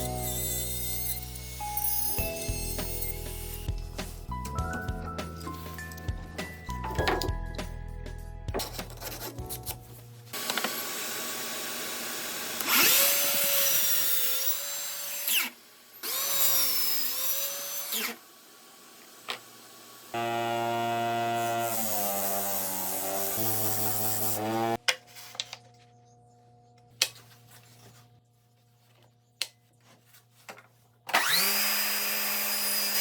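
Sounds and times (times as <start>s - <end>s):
power tool motor whining on wood: 10.4s - 24.8s, 31.1s - 33.0s.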